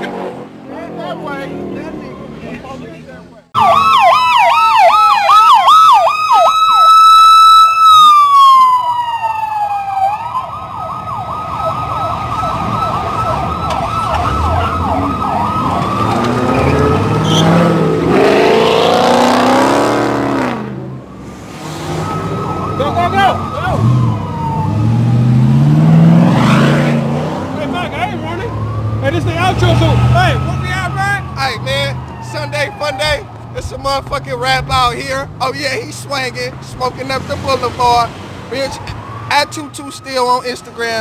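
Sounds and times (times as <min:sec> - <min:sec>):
street noise: 0:00.0 - 0:41.0
emergency siren yelping: 0:03.6 - 0:19.8, 0:21.0 - 0:27.0, 0:27.7 - 0:33.4, 0:38.5 - 0:41.0.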